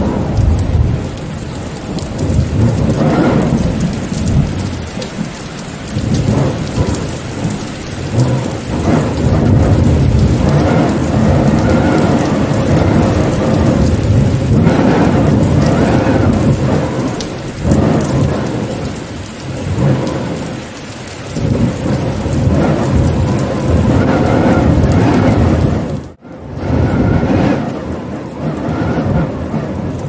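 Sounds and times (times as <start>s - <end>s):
deep rumble: 0.0s - 20.6s, 21.4s - 30.0s
heavy rain falling: 0.0s - 30.0s.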